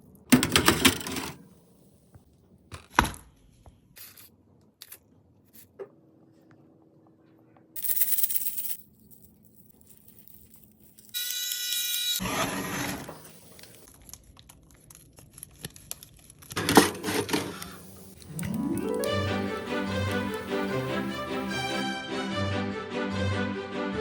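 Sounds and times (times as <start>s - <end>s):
rustling crinkling: 13.4s - 16.6s
crisp clicks and crunches: 13.5s - 16.6s.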